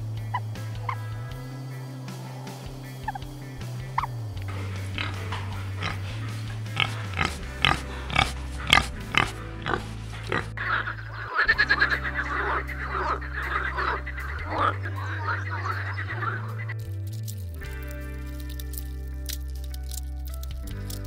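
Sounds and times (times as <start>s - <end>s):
frogs calling: 0.0s - 16.9s
low background music: 0.0s - 21.0s
pigs grunting and squealing: 2.2s - 16.8s.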